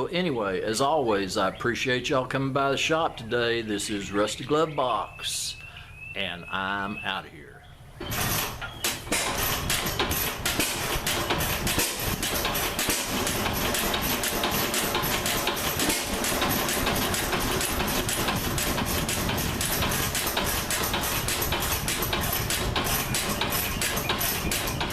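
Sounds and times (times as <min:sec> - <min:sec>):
stationary engine running: 0:08.1 - 0:24.9.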